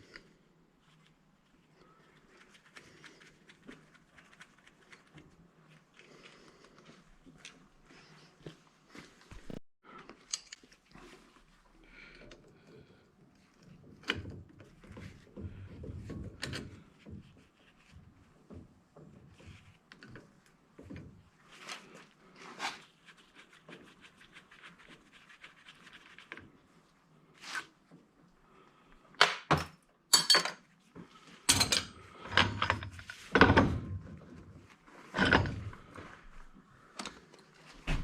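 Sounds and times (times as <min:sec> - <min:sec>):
clunks of tools and metal parts: 0:29.2 - 0:30.6, 0:31.5 - 0:34.0, 0:35.1 - 0:36.0.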